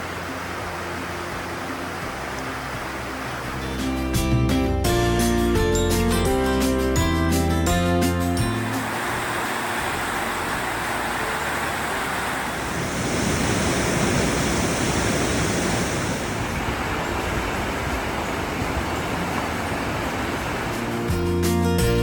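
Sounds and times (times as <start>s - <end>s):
steady rushing noise: 0.0s - 4.4s, 8.2s - 21.3s
bright hiss: 8.4s - 16.6s.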